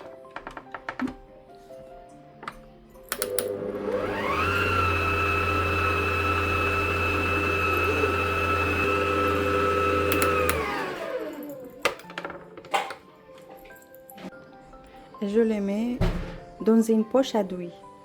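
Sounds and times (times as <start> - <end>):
electric mixer motor whine: 3.2 - 11.9.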